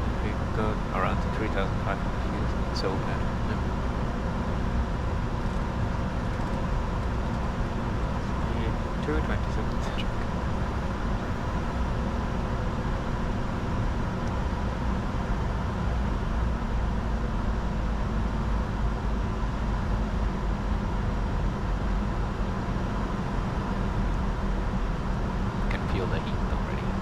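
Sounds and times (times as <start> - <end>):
jet engines humming: 0.0 - 6.5, 7.7 - 11.9
faint steady whine: 0.0 - 13.0.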